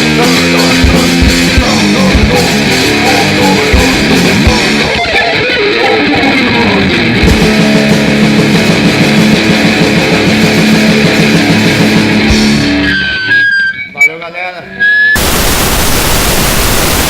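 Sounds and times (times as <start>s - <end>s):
drums: 0.0s - 13.3s
distorted electric guitar: 0.0s - 13.8s, 14.8s - 17.0s.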